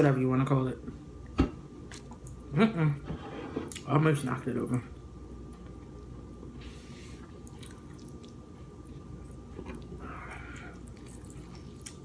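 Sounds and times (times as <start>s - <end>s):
person chewing: 7.2s - 12.0s.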